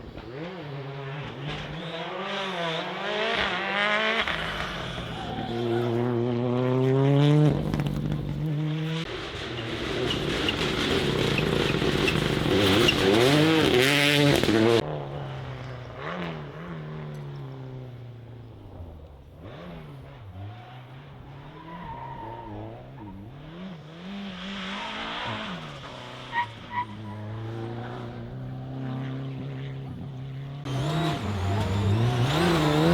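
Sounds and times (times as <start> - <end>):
rally car engines revving: 0.0 - 32.9.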